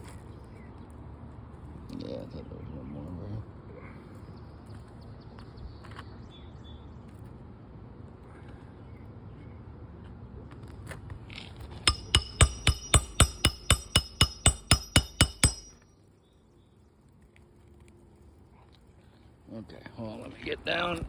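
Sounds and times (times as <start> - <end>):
hammer striking metal: 11.9 - 15.8.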